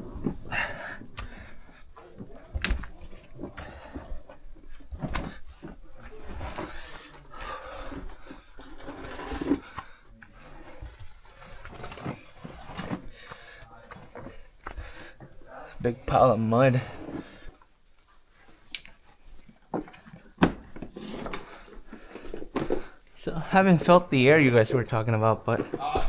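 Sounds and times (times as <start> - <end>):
person breathing hard: 0.0 - 2.1
knocks and scrapes against rock: 0.0 - 26.0.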